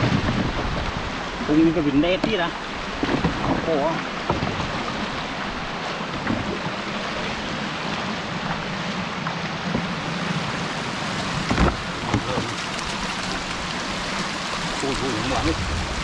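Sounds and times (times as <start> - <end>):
floodwater flowing: 0.0 - 16.0
short knocks or splashes: 2.1 - 5.1, 11.4 - 13.1.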